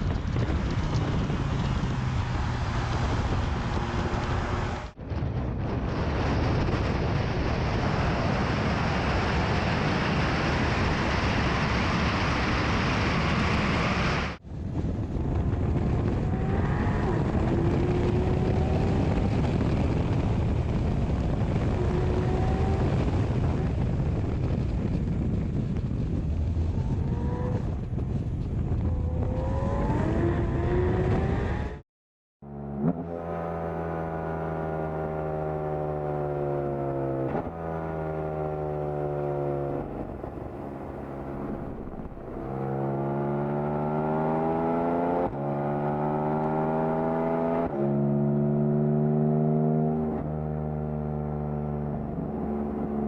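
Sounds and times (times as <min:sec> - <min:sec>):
wind and road noise: 0:00.0 - 0:31.8, 0:32.4 - 0:53.0
car engine accelerating: 0:15.5 - 0:20.5, 0:28.8 - 0:31.8, 0:32.4 - 0:53.0.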